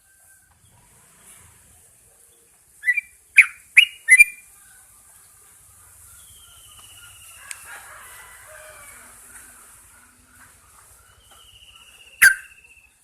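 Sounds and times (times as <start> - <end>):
bird chirping loudly: 2.8 - 4.4, 6.0 - 7.7, 11.0 - 13.0
faint thin falling whistle: 12.1 - 12.8.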